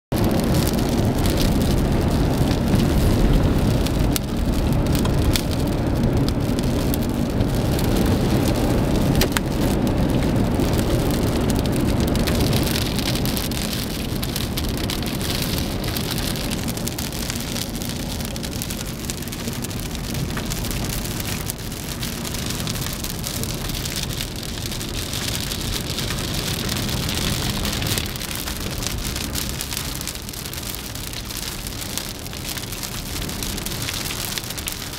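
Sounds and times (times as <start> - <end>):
deep rumble: 0.1 - 34.9
rain falling steadily: 0.1 - 34.9.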